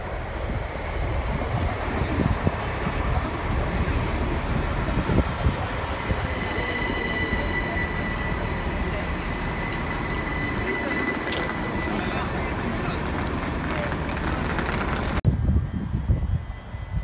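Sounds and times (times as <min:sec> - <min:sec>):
train wheels rumbling on rails: 0:00.0 - 0:17.0
high squeal of train brakes: 0:06.1 - 0:12.4.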